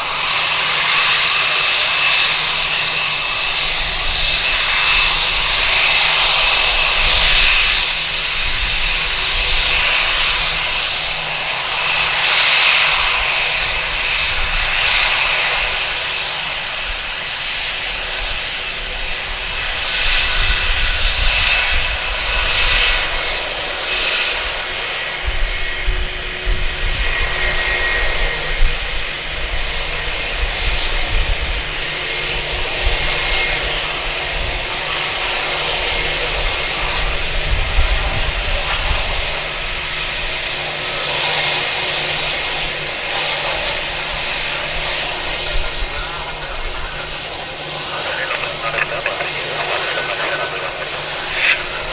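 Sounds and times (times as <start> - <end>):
jet engines roaring: 0.0 - 51.9.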